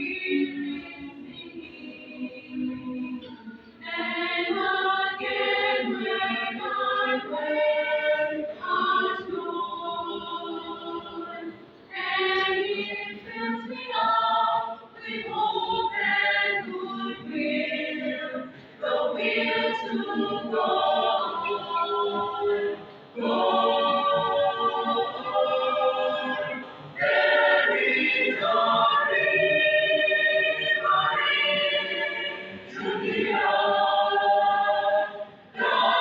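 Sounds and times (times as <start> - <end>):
choir singing: 0.0 - 36.0.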